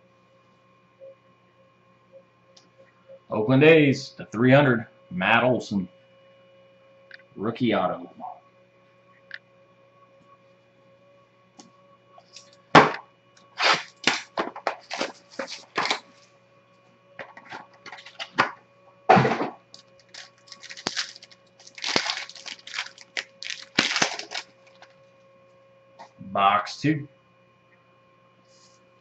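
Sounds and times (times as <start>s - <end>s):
wrapping crinkling and tearing: 12.2s - 12.6s, 13.6s - 16.2s, 17.5s - 18.4s, 19.7s - 25.0s.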